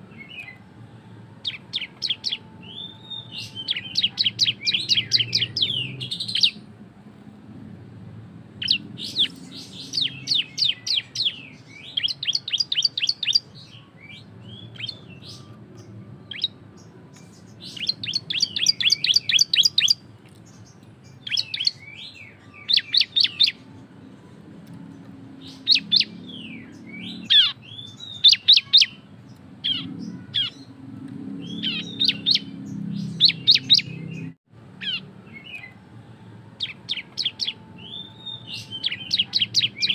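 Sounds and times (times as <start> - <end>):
bird singing fast chattering notes: 1.4 - 6.6, 8.6 - 13.8, 17.3 - 23.6, 25.4 - 29.0, 31.4 - 35.7, 36.6 - 39.9.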